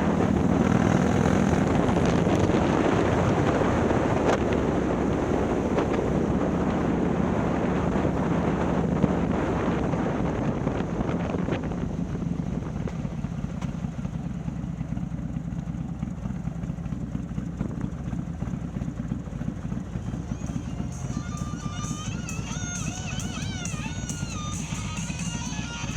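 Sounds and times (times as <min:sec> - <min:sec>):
wind noise: 0:00.0 - 0:12.9
motorcycle engine running: 0:00.0 - 0:25.9.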